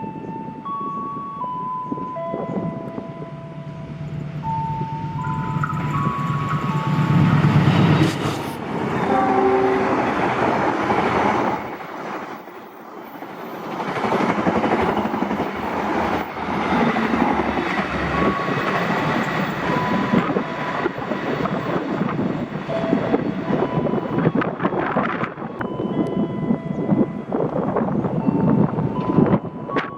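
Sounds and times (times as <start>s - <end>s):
train wheel and rail rush: 0.0s - 29.9s
train horn: 6.4s - 10.3s.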